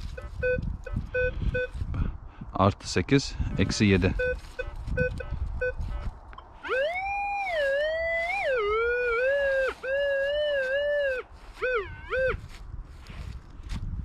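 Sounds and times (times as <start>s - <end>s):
metal detector warbling tone: 0.1s - 1.7s, 6.6s - 12.4s
metal detector short beeps: 0.1s - 1.8s, 4.1s - 6.5s.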